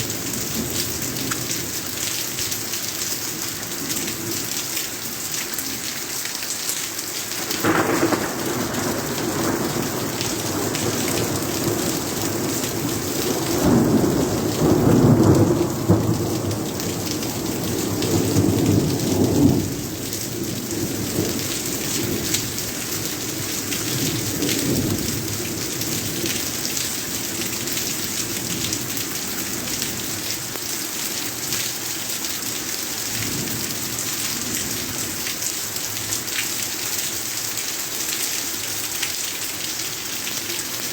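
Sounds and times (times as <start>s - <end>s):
steady rain falling: 0.0s - 40.9s
rolling thunder: 7.4s - 22.6s.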